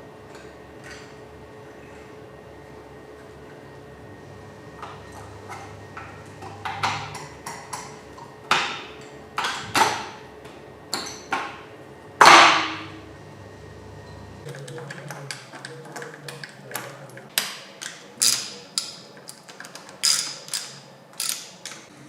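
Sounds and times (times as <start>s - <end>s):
metal parts clinking and knocking: 17.8s - 21.8s.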